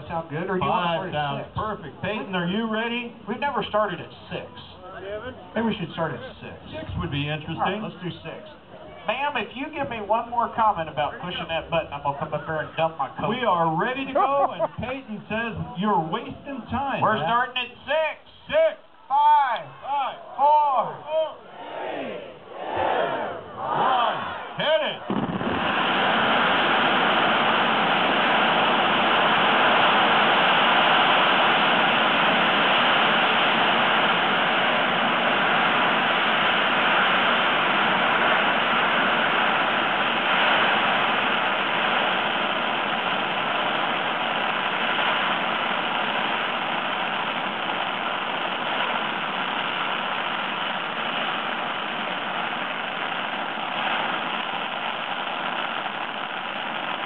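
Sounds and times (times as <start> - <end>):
firecracker string crackling: 24.6 - 57.0.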